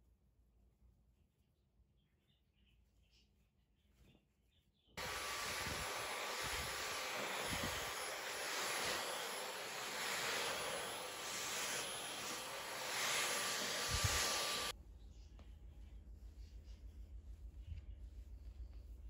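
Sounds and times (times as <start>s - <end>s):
vacuum cleaner running: 5.0s - 14.8s.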